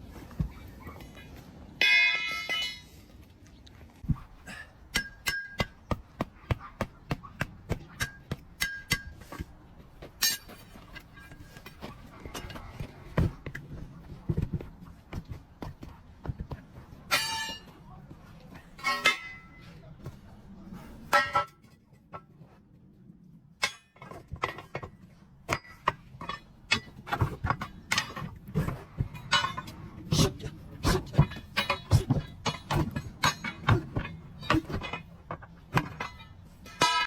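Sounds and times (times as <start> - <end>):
sharp knocks and thuds: 11.2 - 17.6.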